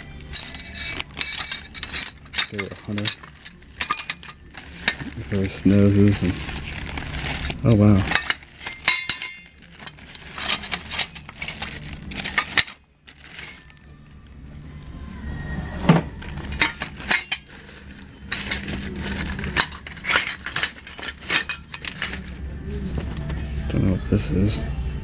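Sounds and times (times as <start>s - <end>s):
metal parts clinking and clattering: 0.0s - 13.8s, 16.2s - 22.4s.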